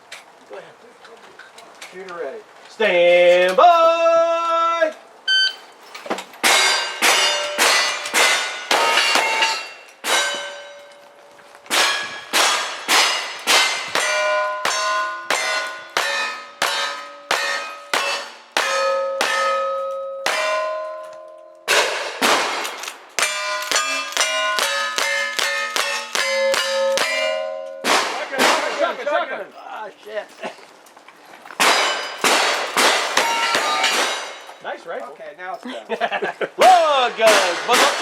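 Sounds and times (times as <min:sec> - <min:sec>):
steel plate clanging: 0:05.9 - 0:29.2, 0:31.6 - 0:34.7, 0:36.6 - 0:38.0
gunshots: 0:21.7 - 0:27.1, 0:27.8 - 0:29.0, 0:31.6 - 0:34.5.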